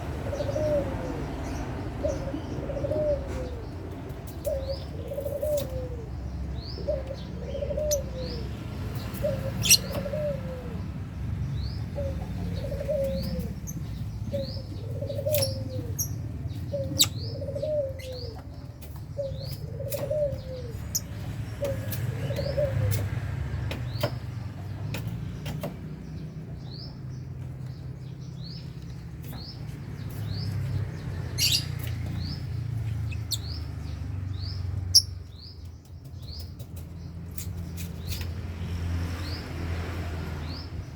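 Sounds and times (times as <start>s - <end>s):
low cooing call: 0.2s - 1.4s, 2.0s - 3.8s, 4.5s - 6.1s, 6.8s - 8.5s, 9.2s - 10.9s, 12.0s - 13.6s, 16.7s - 18.5s, 19.2s - 20.9s
lovebirds chirping: 4.3s - 39.6s.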